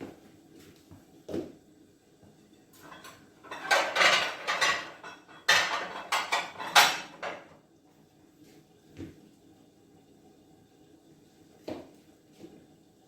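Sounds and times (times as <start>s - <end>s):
dishes and utensils clattering: 2.7s - 7.6s.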